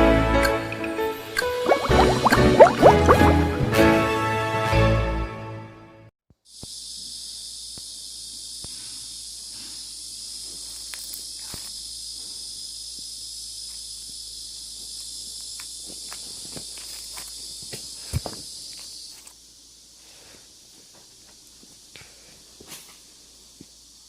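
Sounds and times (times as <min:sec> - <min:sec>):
insect chirring: 0:06.4 - 0:21.9, 0:23.0 - 0:24.0.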